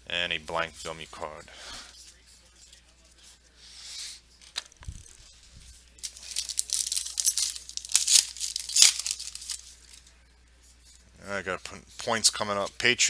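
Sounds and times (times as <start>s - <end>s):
soft handling rustles: 4.4s - 11.0s
foil pack tearing and crinkling: 6.0s - 9.6s.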